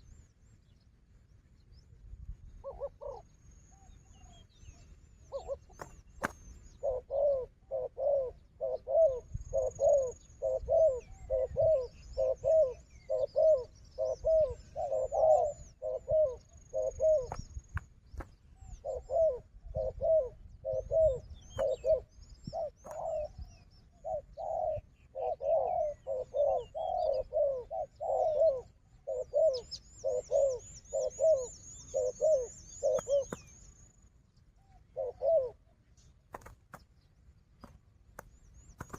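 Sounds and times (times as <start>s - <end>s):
small birds chirping: 0.0s - 38.9s
doves cooing: 2.6s - 3.3s, 5.3s - 33.5s, 34.6s - 35.7s.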